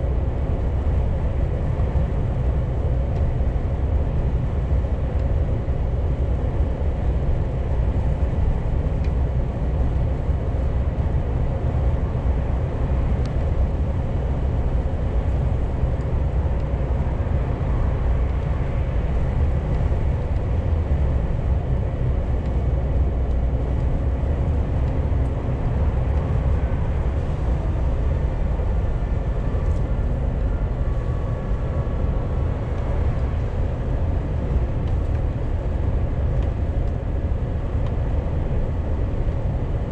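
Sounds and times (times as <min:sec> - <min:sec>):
truck engine and road rumble: 0:00.0 - 0:39.9.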